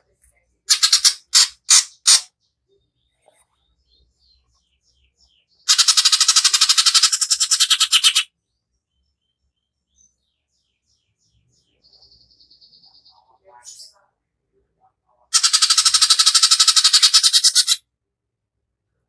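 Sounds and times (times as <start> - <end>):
soft bird chirps: 0.0 - 14.1.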